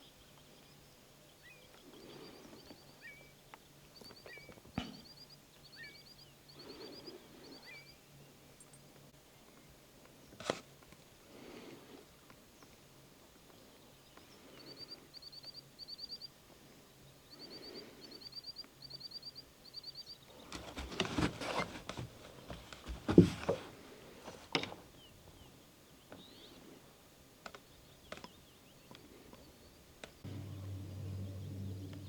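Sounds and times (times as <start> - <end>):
rustling and clicking: 20.4 - 24.9.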